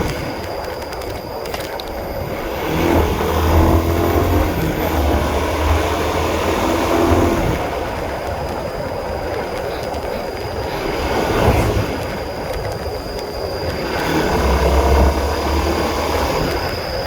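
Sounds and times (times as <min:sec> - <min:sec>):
motorcycle engine rumble: 0:00.0 - 0:17.0.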